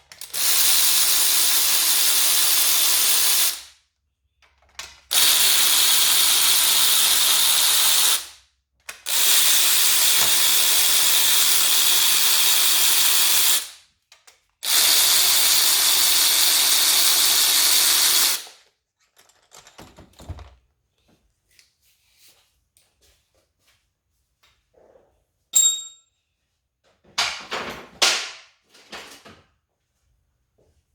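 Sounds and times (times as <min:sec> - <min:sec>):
power tool running: 0:00.2 - 0:03.7, 0:05.1 - 0:08.3, 0:09.1 - 0:13.8, 0:14.6 - 0:18.6
tools and metal parts clinking: 0:19.0 - 0:20.5.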